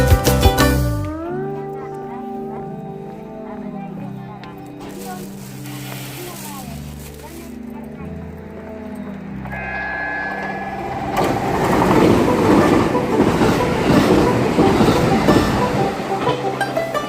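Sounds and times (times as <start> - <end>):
train whine: 8.8 - 17.0
train wheel rushing noise: 9.6 - 17.0.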